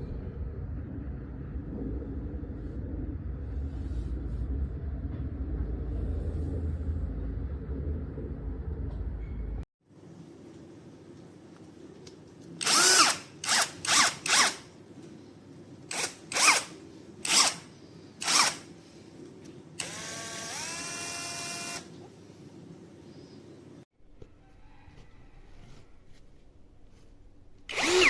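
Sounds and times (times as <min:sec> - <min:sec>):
cordless drill motor whining: 0:12.6 - 0:14.6, 0:15.9 - 0:18.7, 0:19.8 - 0:21.9, 0:27.7 - 0:28.0.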